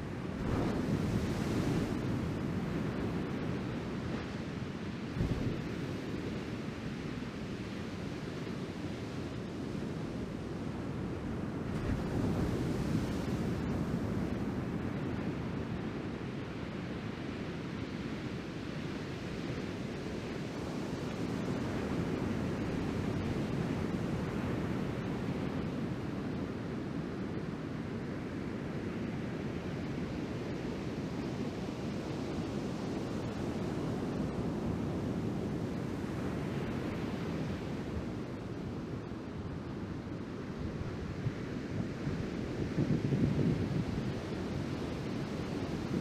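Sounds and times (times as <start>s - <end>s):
wind buffeting microphone: 5.2s - 6.0s.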